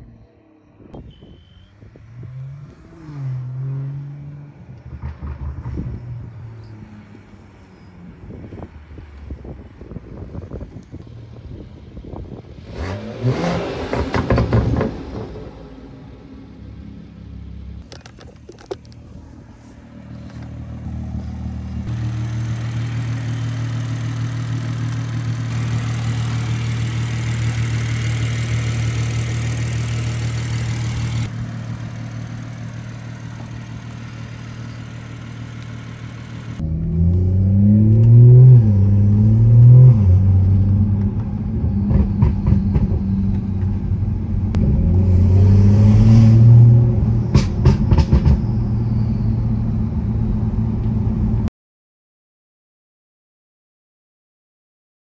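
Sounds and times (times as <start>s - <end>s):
car engine accelerating: 10.4s - 51.5s.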